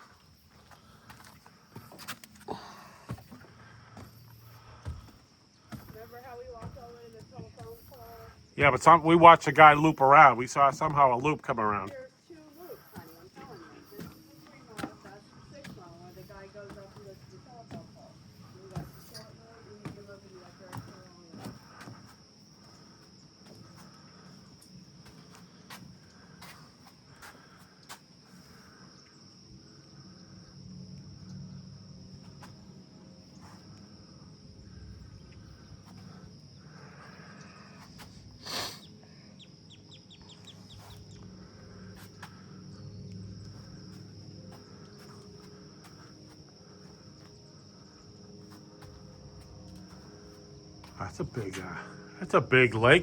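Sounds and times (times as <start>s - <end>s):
high-pitched insect chorus: 0.0s - 53.0s
birds calling: 38.6s - 41.3s.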